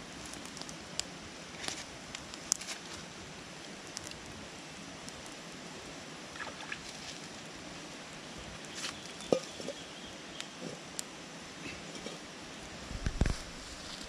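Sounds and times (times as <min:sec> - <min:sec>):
river flowing: 0:04.4 - 0:08.4.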